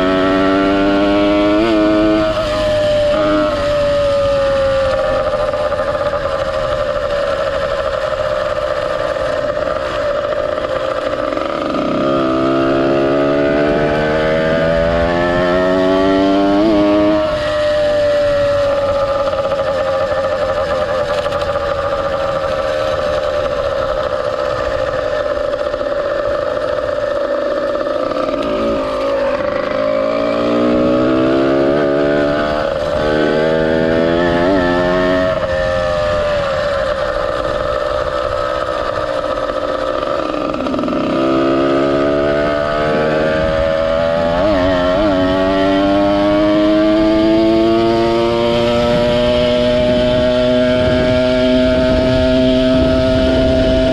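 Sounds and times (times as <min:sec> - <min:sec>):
two-stroke motorized bicycle engine: 0:35.4 - 0:43.6.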